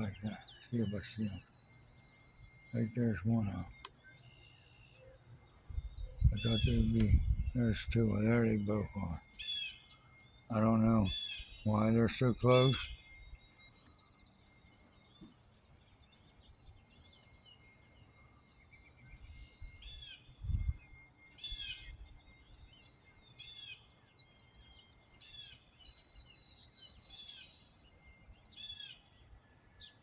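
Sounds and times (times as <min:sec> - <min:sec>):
songbird repeating high call: 0:00.0 - 0:13.4
faint bird chirps: 0:00.0 - 0:30.0
thin steady high tone: 0:00.0 - 0:30.0.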